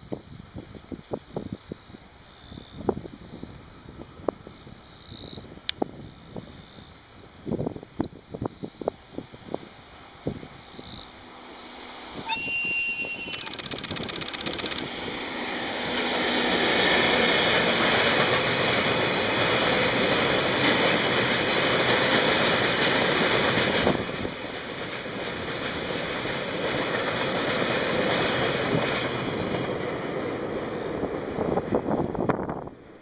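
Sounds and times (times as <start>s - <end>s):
freight train wheels clattering: 16.0s - 32.5s.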